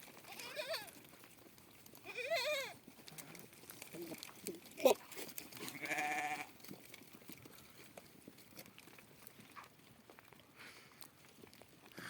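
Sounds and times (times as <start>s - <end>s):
goat bleating: 0.2s - 1.0s, 2.0s - 5.0s, 5.6s - 6.5s.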